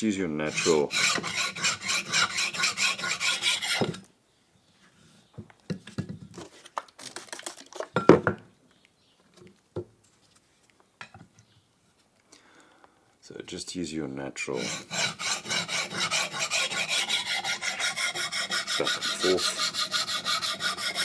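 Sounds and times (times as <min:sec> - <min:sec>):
knife rasping on sharpening stone: 0:00.5 - 0:04.0, 0:14.6 - 0:21.0.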